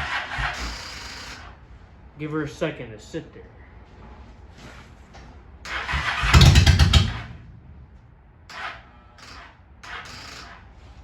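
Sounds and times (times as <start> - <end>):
motorcycle engine cranking and popping: 5.7 - 10.7.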